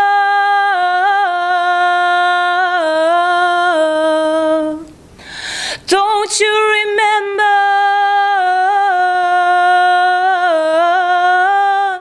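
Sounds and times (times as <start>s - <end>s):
woman singing unaccompanied: 0.0s - 5.0s, 5.8s - 12.0s
quick breath in: 5.1s - 5.9s.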